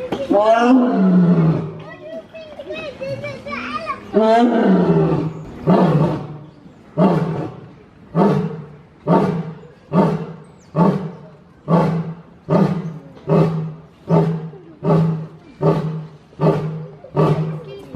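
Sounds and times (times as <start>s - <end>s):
lion roaring grunts: 7.0s - 17.7s.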